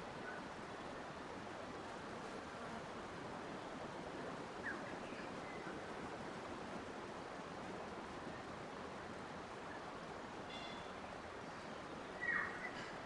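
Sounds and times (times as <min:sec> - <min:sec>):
water rushing: 0:00.0 - 0:13.0
faint bird chirps: 0:10.5 - 0:13.0.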